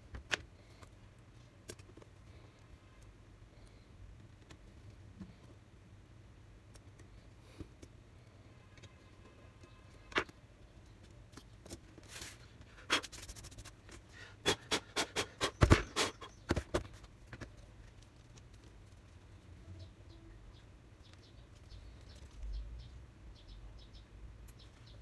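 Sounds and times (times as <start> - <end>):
plastic laptop parts clicking: 1.6 - 2.1.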